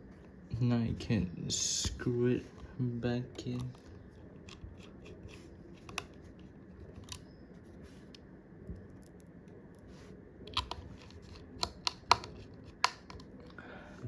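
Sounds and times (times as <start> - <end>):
screwdriver clicking on phone: 10.5 - 13.6.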